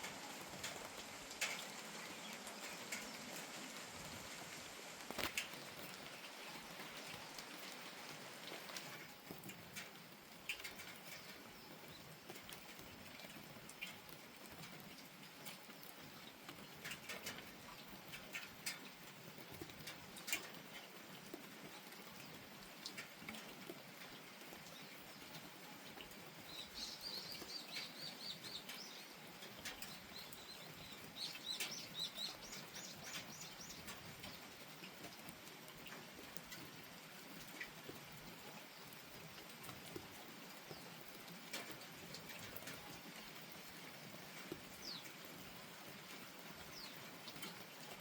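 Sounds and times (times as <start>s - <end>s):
light steady rain: 0.0s - 48.0s
sharp drips: 0.0s - 48.0s
small bird chirping: 26.5s - 29.2s, 29.8s - 34.4s.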